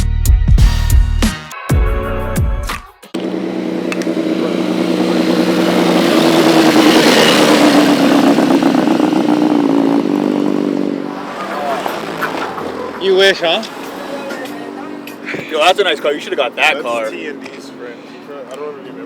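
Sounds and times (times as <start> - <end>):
music: 0.0 - 3.2
vehicle engine running: 3.2 - 19.0.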